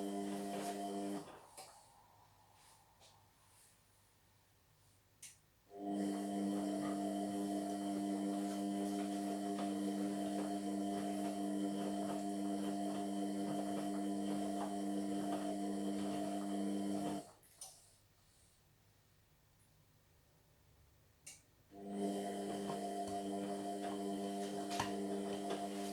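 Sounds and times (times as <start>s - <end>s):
washing machine motor hum: 0.0s - 2.0s, 5.7s - 17.4s, 21.7s - 25.9s.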